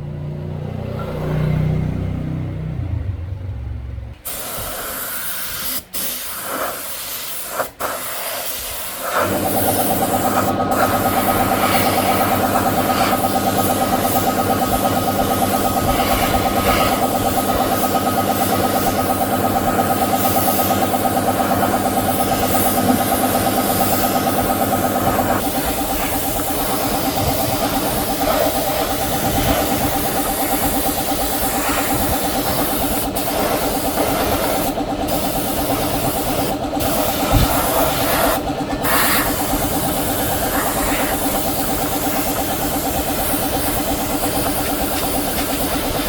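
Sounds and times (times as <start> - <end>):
rushing air hiss: 4.2 - 19.0, 20.1 - 46.0
machine humming with fast pulse: 9.2 - 46.0.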